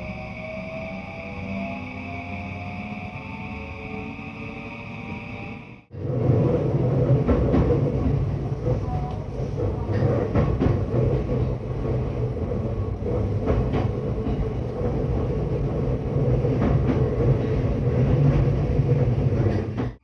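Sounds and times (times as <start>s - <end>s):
train wheels rumbling on rail: 5.9s - 20.0s.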